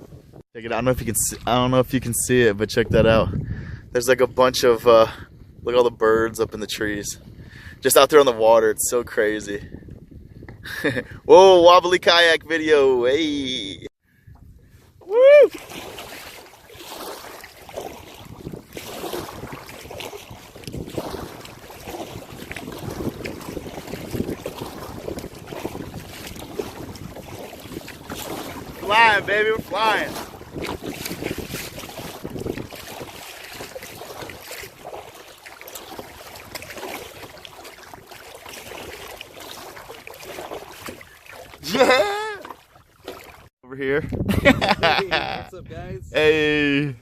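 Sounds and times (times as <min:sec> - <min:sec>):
wind buffeting microphone: 0:00.0 - 0:13.0, 0:13.6 - 0:47.0
water lapping against kayak: 0:06.3 - 0:12.3, 0:13.0 - 0:43.6.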